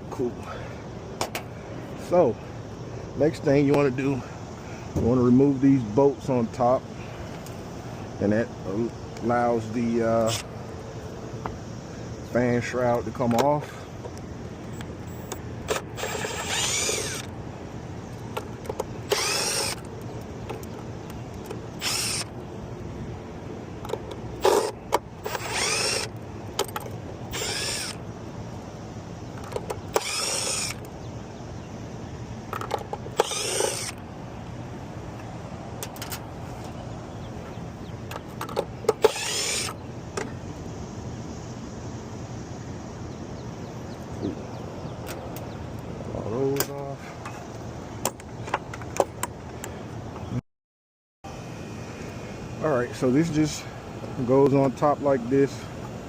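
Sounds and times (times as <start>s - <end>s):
power drill whining: 15.1s - 17.3s, 19.1s - 19.9s, 21.8s - 22.3s, 24.4s - 26.1s, 27.3s - 28.0s, 29.9s - 30.8s, 33.1s - 34.0s, 39.0s - 39.8s.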